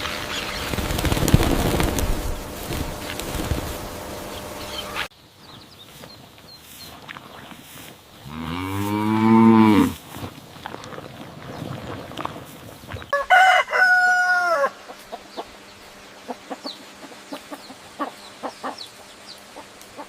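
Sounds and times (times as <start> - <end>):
steady rushing noise: 0.0 - 5.0
cow mooing: 8.2 - 10.0.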